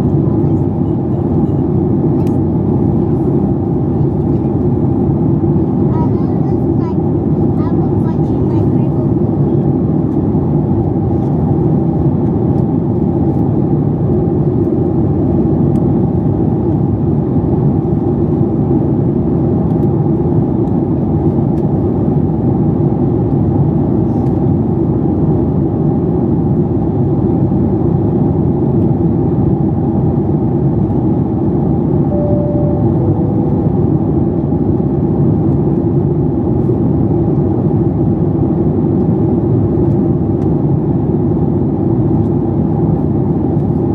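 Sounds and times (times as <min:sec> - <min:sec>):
airplane cabin engine drone: 0:00.0 - 0:43.9
two-note cabin chime: 0:32.1 - 0:34.3.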